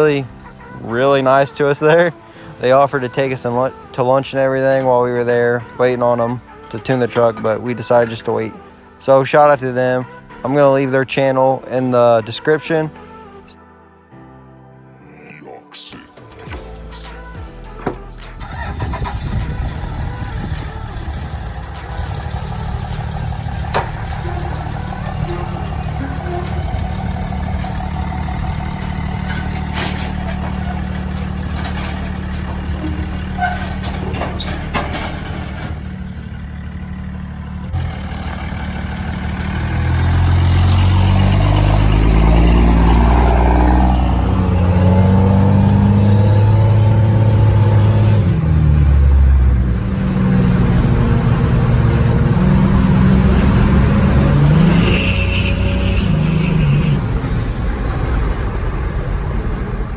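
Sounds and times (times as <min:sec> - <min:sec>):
diesel truck engine accelerating: 0:17.2 - 0:59.9.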